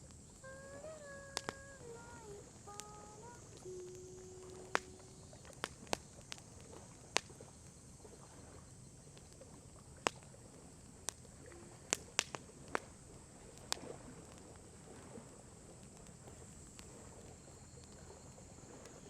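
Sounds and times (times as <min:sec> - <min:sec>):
faint steady hiss: 0:00.0 - 0:19.0
wood fire pops and snaps: 0:01.3 - 0:01.9, 0:02.5 - 0:07.8, 0:09.1 - 0:15.1, 0:15.7 - 0:18.1.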